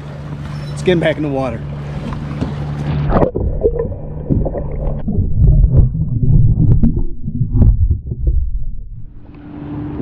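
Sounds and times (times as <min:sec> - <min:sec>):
water sloshing around a kayak: 0:00.0 - 0:06.7.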